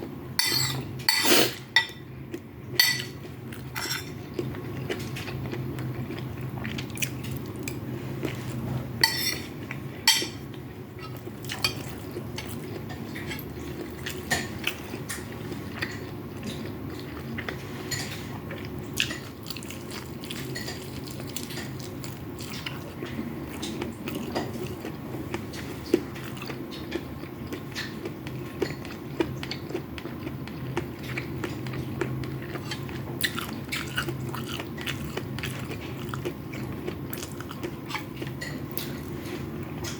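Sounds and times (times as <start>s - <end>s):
low background hum: 0.0s - 39.9s
chewing food: 2.3s - 8.6s, 10.5s - 39.9s
utensils scraping on a plate: 3.8s - 4.2s, 9.0s - 9.5s.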